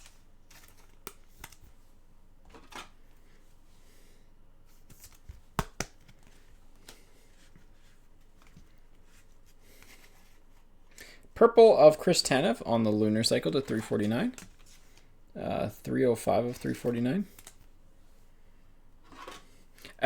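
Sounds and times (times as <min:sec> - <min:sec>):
trading cards rustling: 0:00.0 - 0:03.5, 0:04.7 - 0:11.0, 0:11.8 - 0:17.8
sharp card clicks: 0:04.9 - 0:07.0.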